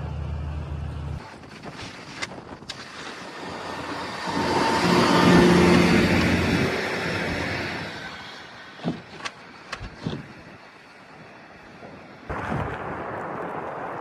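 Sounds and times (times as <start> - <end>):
passing vehicle: 3.1 - 12.3
sharp knocks and clicks: 8.8 - 10.3.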